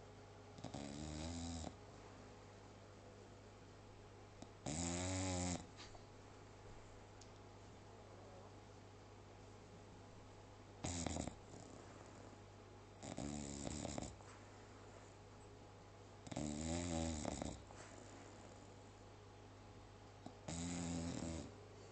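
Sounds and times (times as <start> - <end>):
dog snoring: 0.5 - 1.8, 4.4 - 5.8, 10.8 - 12.4, 13.0 - 14.4, 16.2 - 18.8, 20.2 - 21.9.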